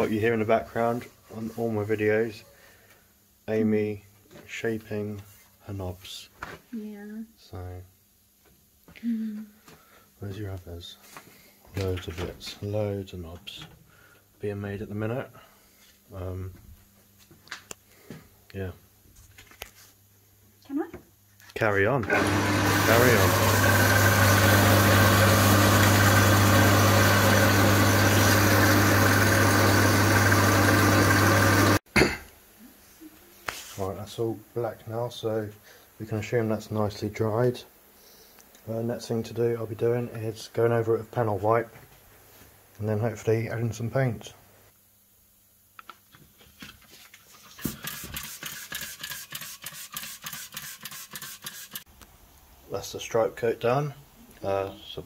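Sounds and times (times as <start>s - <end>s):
electric power sander running: 22.0s - 31.8s
paint brush scrubbing: 46.9s - 51.9s.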